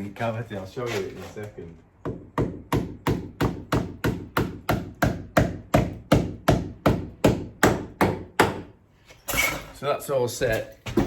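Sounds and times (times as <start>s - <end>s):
hammer driving a nail: 2.0s - 8.8s.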